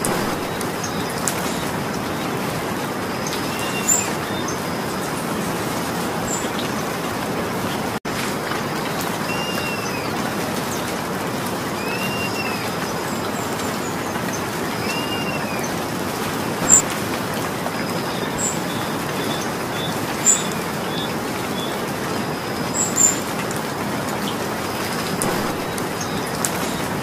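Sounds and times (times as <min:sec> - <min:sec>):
faint bird chirps: 0:00.0 - 0:01.8, 0:25.2 - 0:27.0
sharp drip-like ticks: 0:00.0 - 0:05.2, 0:08.0 - 0:27.0
steady rain falling: 0:00.0 - 0:27.0.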